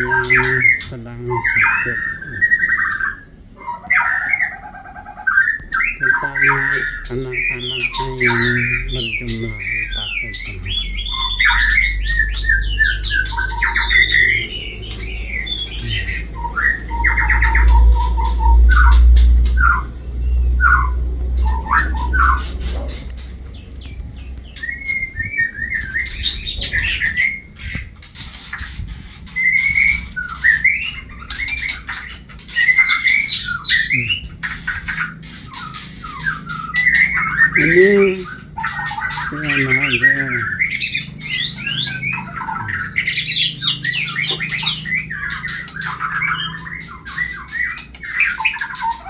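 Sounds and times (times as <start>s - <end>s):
bird whistling and chirping: 0.0s - 49.0s
low rumble: 6.0s - 29.1s.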